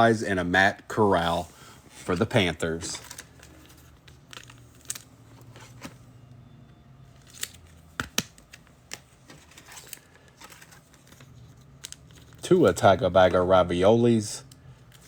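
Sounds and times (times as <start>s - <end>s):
trading cards clicking and rustling: 2.1s - 6.0s, 7.2s - 13.4s.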